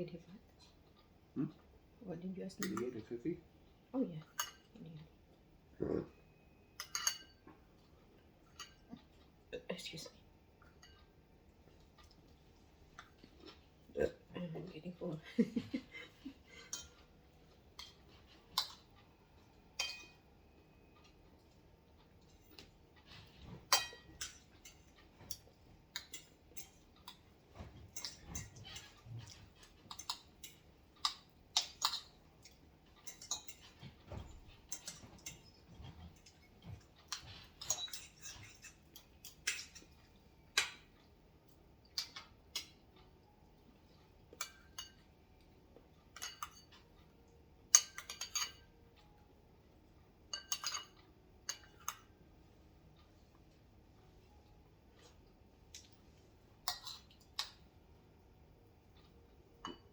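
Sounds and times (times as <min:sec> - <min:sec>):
cutlery clinking on dishes: 0:04.3 - 0:04.7, 0:06.7 - 0:09.3, 0:10.6 - 0:11.2, 0:16.5 - 0:17.1, 0:17.7 - 0:20.4, 0:21.0 - 0:41.0, 0:44.2 - 0:45.1, 0:46.1 - 0:47.0, 0:47.7 - 0:49.2, 0:50.3 - 0:52.2, 0:56.6 - 0:57.7, 0:59.0 - 0:59.9.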